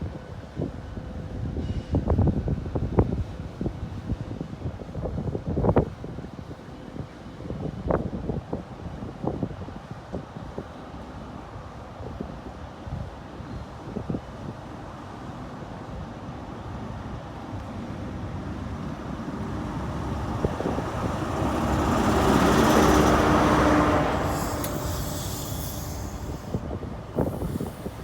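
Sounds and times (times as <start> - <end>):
diesel train engine passing: 15.0 - 28.0.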